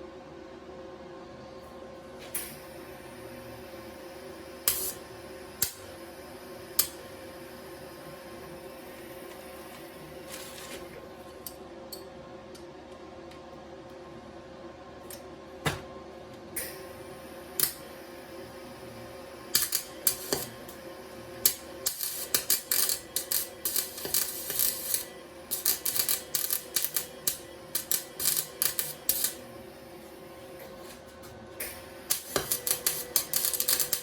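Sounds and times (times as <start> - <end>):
welder electrical hum: 0.0 - 34.0
welding arc crackling: 4.6 - 5.0, 17.6 - 17.8, 19.5 - 29.4, 31.8 - 34.0.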